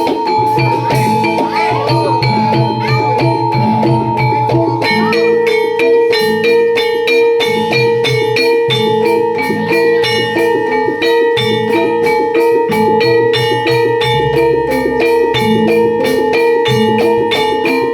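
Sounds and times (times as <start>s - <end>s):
drum beat: 0.0s - 17.9s
struck metal gongs: 0.0s - 17.9s
long held high tone: 8.7s - 17.9s.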